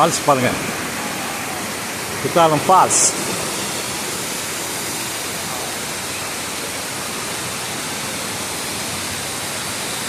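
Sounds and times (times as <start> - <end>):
waterfall roaring: 0.0 - 10.0.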